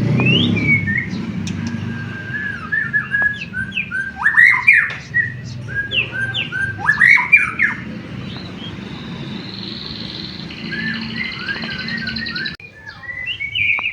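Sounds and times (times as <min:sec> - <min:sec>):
bird whistling song: 0:00.0 - 0:13.9.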